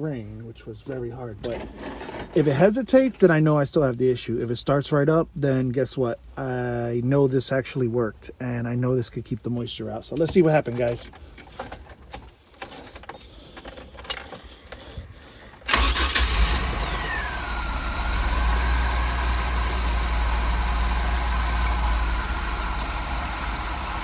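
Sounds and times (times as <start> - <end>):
light clicks and rattles: 10.1 - 15.7
car engine starting and idling: 15.6 - 24.0.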